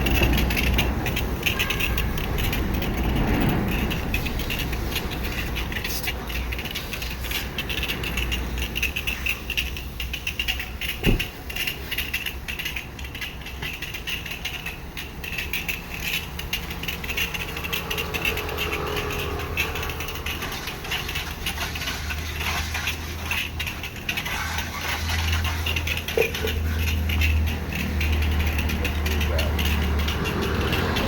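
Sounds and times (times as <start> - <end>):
pressure washer motor hum: 16.1 - 31.0.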